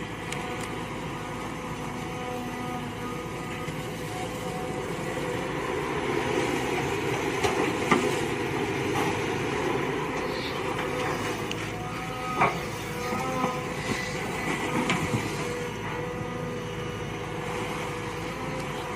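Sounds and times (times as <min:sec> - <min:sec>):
mini excavator engine running: 0:00.0 - 0:18.9.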